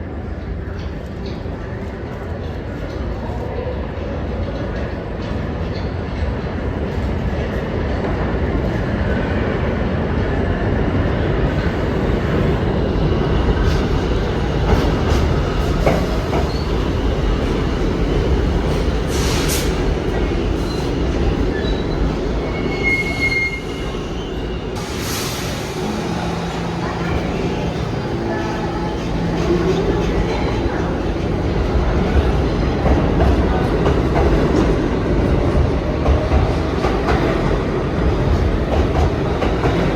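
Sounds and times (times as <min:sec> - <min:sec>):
train wheels rumbling on rail: 0:00.0 - 0:39.9
high-pitched wheel squeals: 0:21.6 - 0:24.4.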